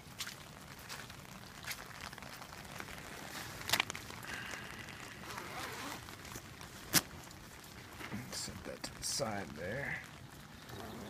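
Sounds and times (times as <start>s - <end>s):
rain pattering: 0.0s - 11.0s
handling rustle: 1.7s - 8.5s.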